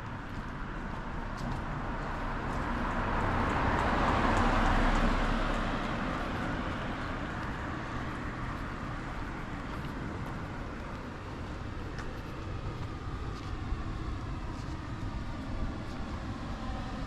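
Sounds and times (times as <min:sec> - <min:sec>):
vehicle passing by: 0:01.4 - 0:09.9.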